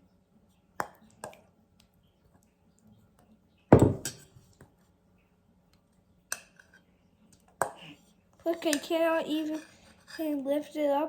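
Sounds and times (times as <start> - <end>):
spoon knocking against bowl: 3.7 - 4.3
spoon stirring thick slime: 5.8 - 11.0.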